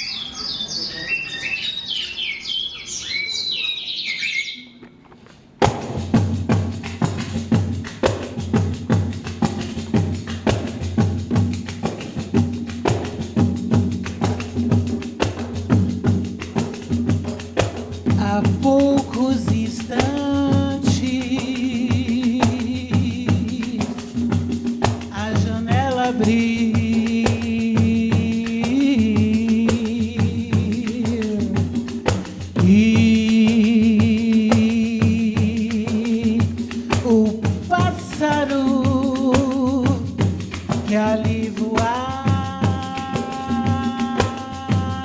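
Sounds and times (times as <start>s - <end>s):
birdsong chirps: 0.0s - 5.0s
frame drums slapping and jingling: 5.5s - 45.0s.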